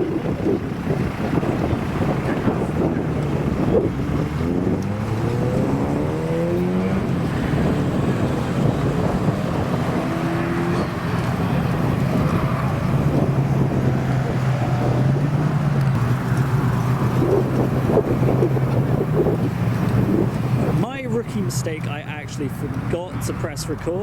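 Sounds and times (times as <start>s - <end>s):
wind buffeting microphone: 0.0s - 23.3s
car engine accelerating: 0.0s - 24.0s.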